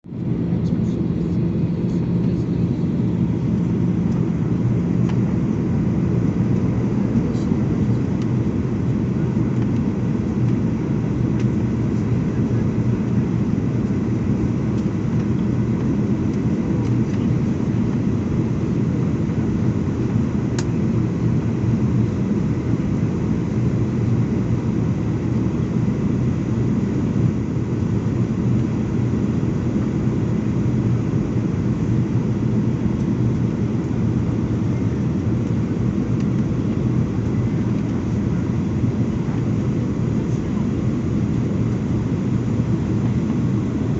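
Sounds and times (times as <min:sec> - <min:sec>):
jet engines rumbling: 0:00.0 - 0:43.9.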